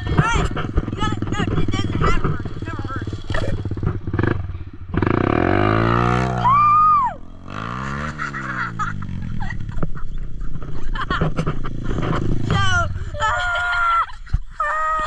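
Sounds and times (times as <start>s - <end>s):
dirt bike engine revving: 0.0s - 13.5s
high rising and falling tone: 4.9s - 9.5s.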